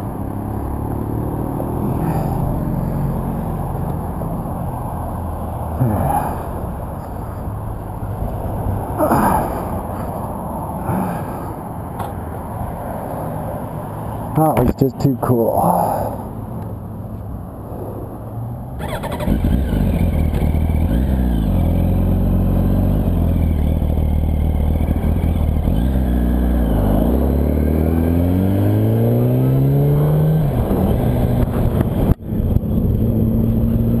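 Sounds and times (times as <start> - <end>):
motorcycle engine accelerating: 18.8 - 34.0.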